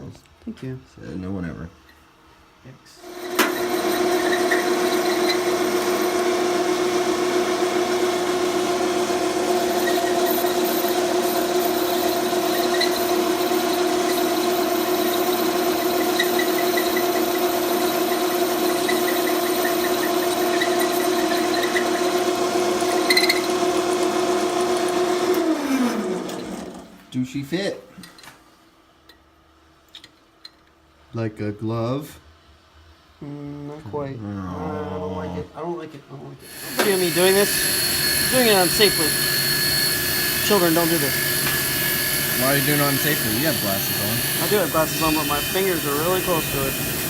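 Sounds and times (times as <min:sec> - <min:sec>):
electric power tool grinding metal: 0:03.0 - 0:26.9, 0:36.4 - 0:47.0.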